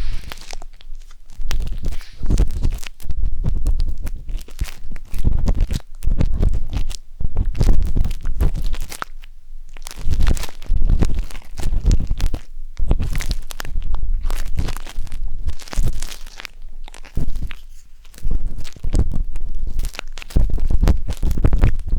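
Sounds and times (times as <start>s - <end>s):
skewer scratching microphone: 0.0s - 3.6s
deep rumble: 0.0s - 3.8s.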